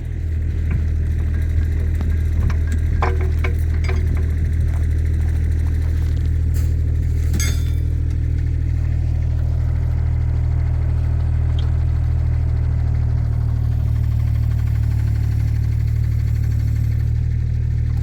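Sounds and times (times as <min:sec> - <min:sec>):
diesel engine running: 0:00.0 - 0:18.0
sharp metal clanks: 0:07.2 - 0:08.0.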